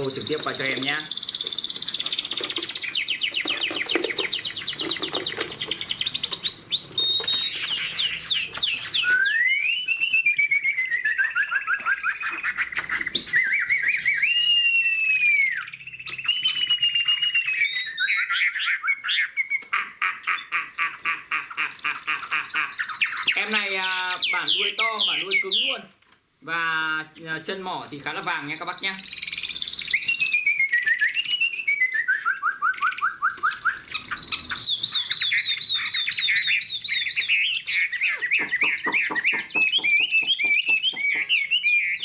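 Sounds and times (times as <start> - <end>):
bird rattling trills: 0.0 - 9.9, 32.2 - 42.0
bird slurred whistles: 6.7 - 19.6, 30.0 - 42.0.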